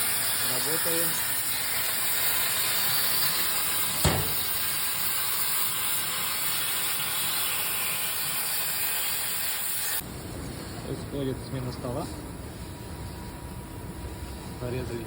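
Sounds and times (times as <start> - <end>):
laser cutter gas jet hissing: 0.0 - 10.0.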